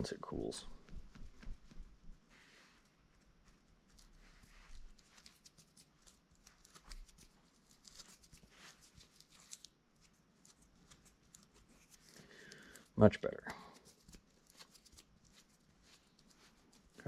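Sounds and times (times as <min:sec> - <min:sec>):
soft rustles of handling: 0:00.0 - 0:17.0
faint clicks of small parts: 0:04.8 - 0:17.0.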